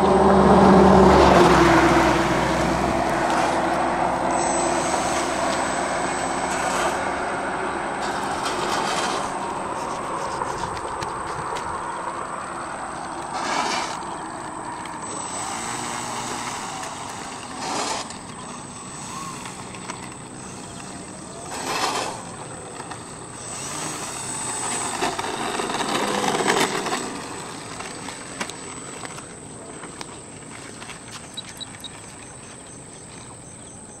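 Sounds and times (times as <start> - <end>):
model plane motor and propeller: 1.4 - 34.0.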